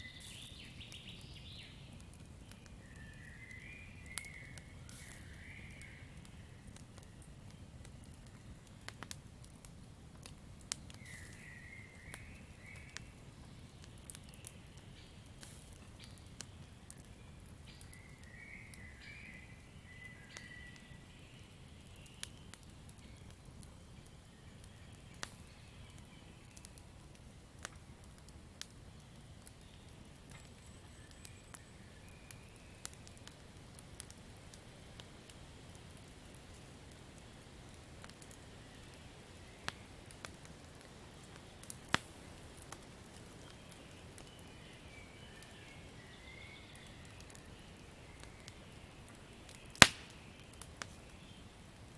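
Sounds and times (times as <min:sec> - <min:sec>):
faint chirping calls: 0:00.0 - 0:07.6, 0:43.2 - 0:51.5
campfire crackling: 0:00.0 - 0:51.9
sharp pops of fire: 0:03.5 - 0:13.1, 0:41.6 - 0:43.5, 0:49.5 - 0:51.1.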